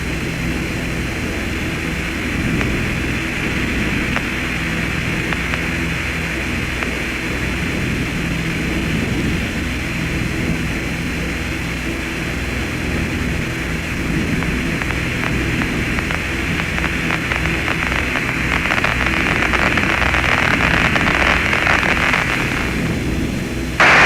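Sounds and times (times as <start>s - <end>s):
low hum: 0.0s - 24.0s
static-like hiss: 0.0s - 24.0s
crackling: 1.2s - 7.8s, 12.8s - 24.0s.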